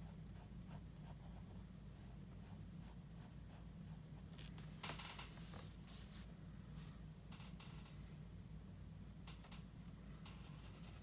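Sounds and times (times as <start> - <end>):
drawing tool scratching paper: 10.4 - 11.0.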